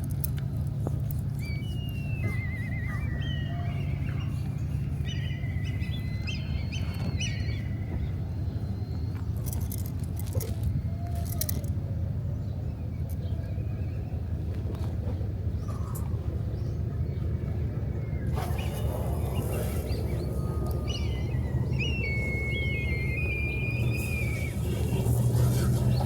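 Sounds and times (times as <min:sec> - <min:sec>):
low outdoor rumble: 0:00.0 - 0:26.0
thin high whistled calls: 0:01.3 - 0:09.8, 0:17.9 - 0:26.0.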